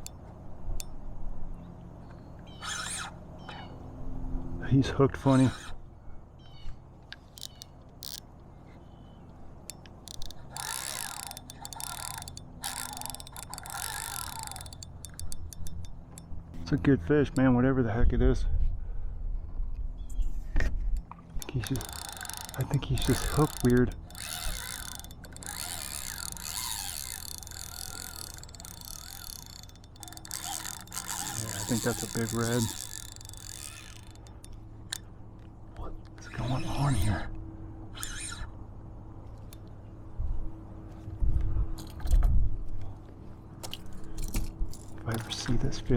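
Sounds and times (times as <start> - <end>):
fishing reel ticking: 0.0 - 1.0, 7.2 - 8.3, 9.7 - 16.8, 21.0 - 35.1, 38.0 - 38.4, 45.1 - 45.6.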